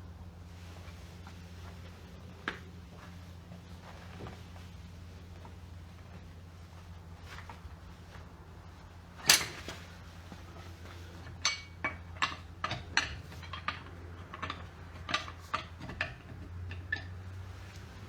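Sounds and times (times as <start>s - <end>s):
steady low hum: 0.0s - 18.0s
metal tools clinking: 9.2s - 9.9s, 11.2s - 17.1s.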